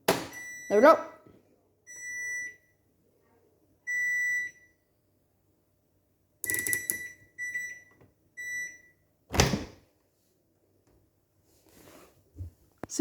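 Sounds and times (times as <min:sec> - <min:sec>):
washing machine beeping: 0:00.3 - 0:01.1, 0:01.9 - 0:02.8, 0:03.9 - 0:04.8, 0:06.4 - 0:09.0.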